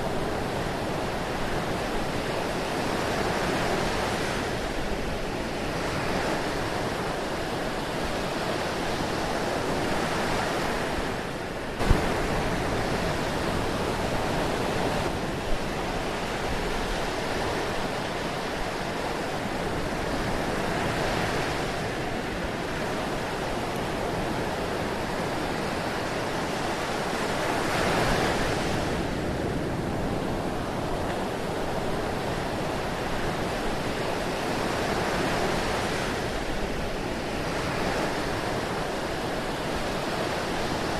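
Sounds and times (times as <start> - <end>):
ocean waves washing: 0.0 - 40.9.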